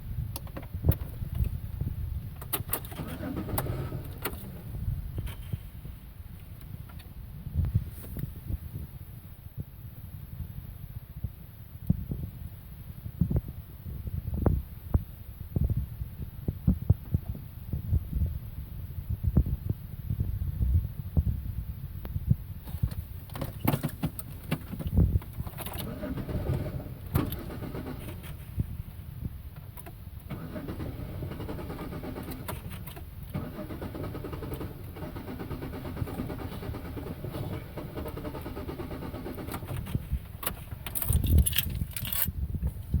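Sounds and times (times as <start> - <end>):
car engine cranking: 0.4 - 5.8, 22.6 - 28.9, 29.6 - 42.8
keys jangling: 40.5 - 42.3.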